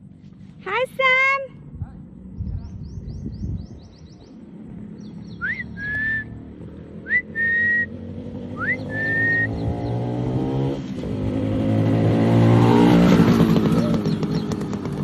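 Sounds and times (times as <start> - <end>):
motorcycle engine: 4.2 - 15.0
upward sweeping whistles: 5.3 - 6.4, 7.0 - 9.9.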